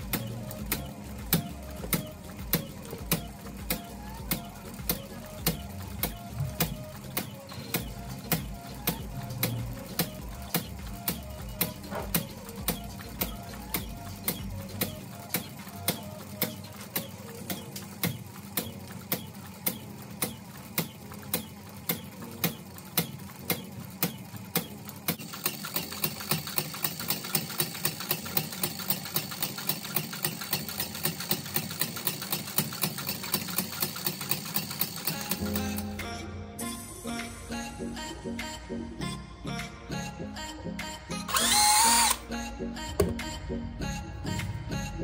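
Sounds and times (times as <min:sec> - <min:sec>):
single-cylinder engine beating: 0:00.0 - 0:36.2.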